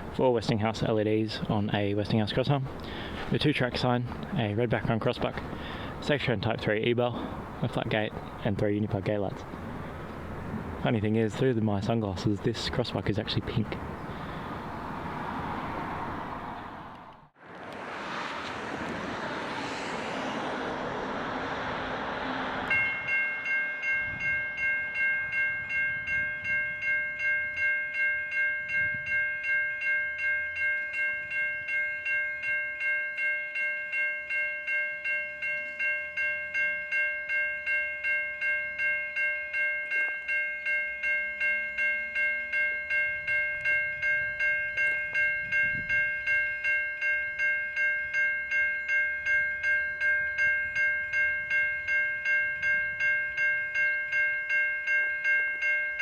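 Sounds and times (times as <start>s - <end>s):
level crossing bells ringing: 22.7s - 56.0s.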